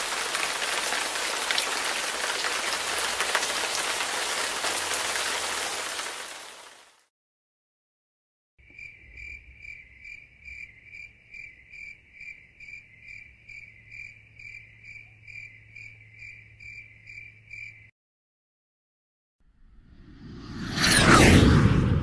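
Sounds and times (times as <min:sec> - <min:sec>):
crickets chirping: 0:08.6 - 0:17.9.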